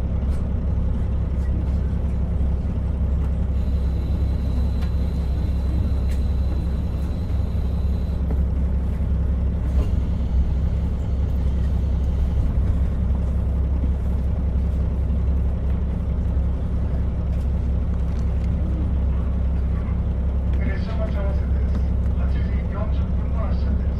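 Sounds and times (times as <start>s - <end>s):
diesel railcar rumble: 0.0s - 23.9s
faint high whine: 3.5s - 8.2s.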